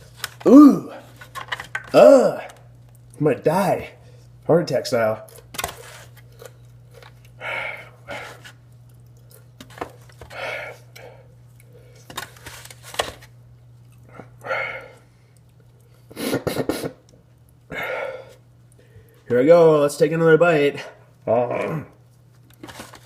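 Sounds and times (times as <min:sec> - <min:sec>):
low steady hum: 0:00.0 - 0:23.0
man breathing heavily while eating: 0:07.3 - 0:08.6, 0:10.2 - 0:12.1, 0:14.0 - 0:16.8, 0:17.7 - 0:19.3.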